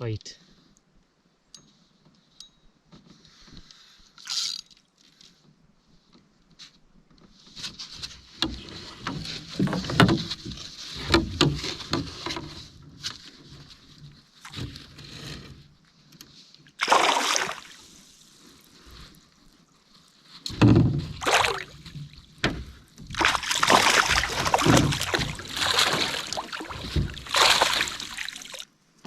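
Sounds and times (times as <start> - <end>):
water splashing and sloshing: 7.9 - 15.3, 16.7 - 19.6, 20.3 - 28.8.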